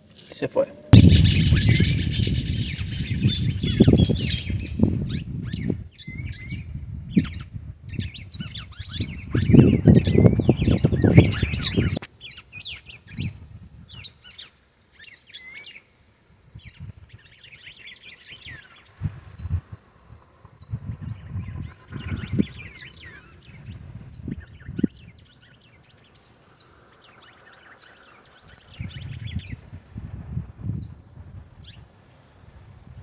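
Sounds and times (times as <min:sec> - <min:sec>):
small birds chirping: 0:00.2 - 0:30.0, 0:30.6 - 0:32.0
low buffeting rumble on microphone: 0:00.9 - 0:12.0, 0:18.5 - 0:25.4, 0:28.5 - 0:33.0.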